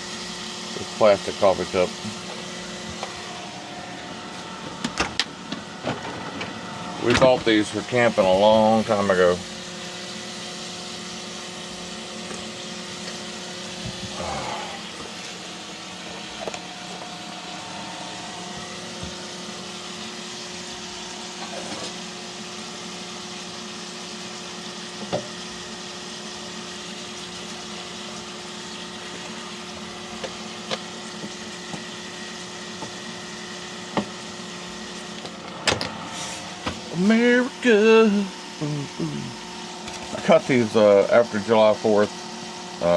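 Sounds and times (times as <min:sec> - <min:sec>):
constant low hum: 0:00.0 - 0:22.0.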